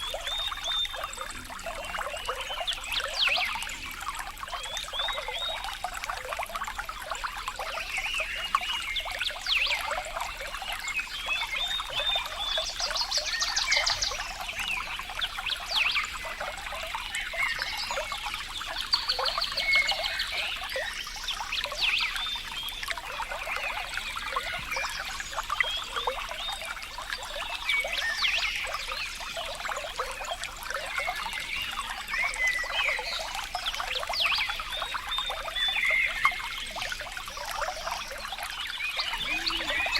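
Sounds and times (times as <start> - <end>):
water trickling over stones: 0.0 - 39.9
animal chirps and trills: 39.0 - 39.9.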